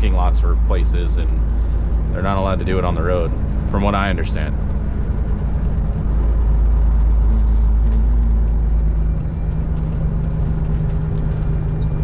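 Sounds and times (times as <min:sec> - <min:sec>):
road noise inside cab: 0:00.0 - 0:12.0
truck diesel engine drone: 0:00.0 - 0:12.0.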